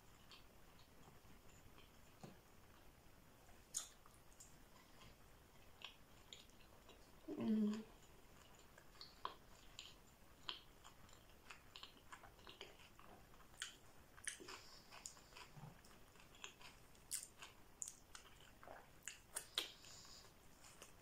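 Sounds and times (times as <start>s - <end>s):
person chewing wet mouth clicks: 3.7s - 5.1s, 5.8s - 21.0s.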